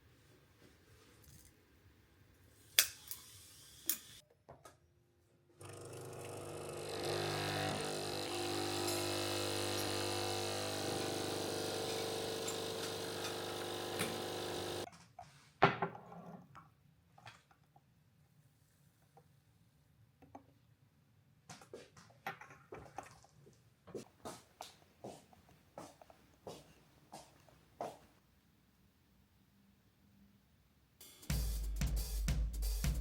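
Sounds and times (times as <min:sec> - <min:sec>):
small electric motor humming: 0:05.6 - 0:14.9.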